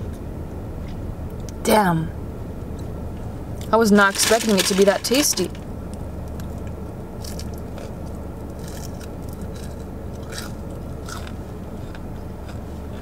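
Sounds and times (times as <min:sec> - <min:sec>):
steady low hum: 0:00.0 - 0:13.0
chewing crunchy fries: 0:03.6 - 0:13.0.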